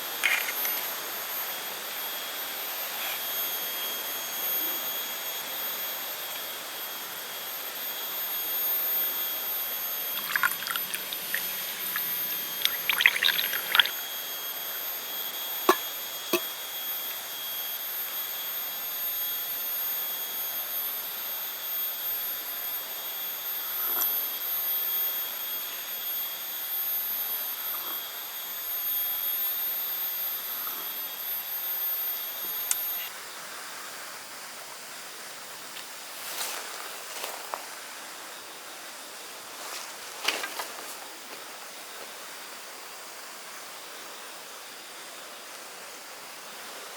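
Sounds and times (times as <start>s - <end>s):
even hiss: 0.0s - 1.4s, 10.0s - 14.1s
high-pitched insect drone: 0.0s - 33.2s.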